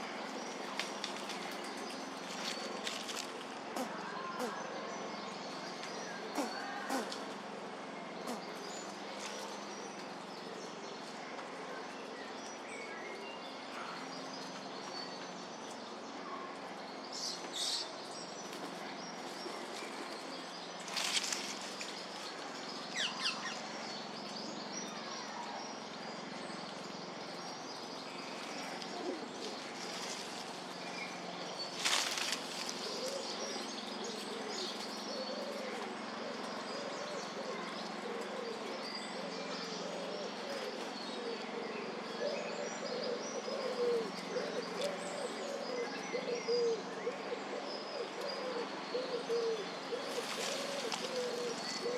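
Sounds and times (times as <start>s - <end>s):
birds chirping: 0.0s - 11.2s, 11.9s - 51.9s
steady background hiss: 17.0s - 51.9s.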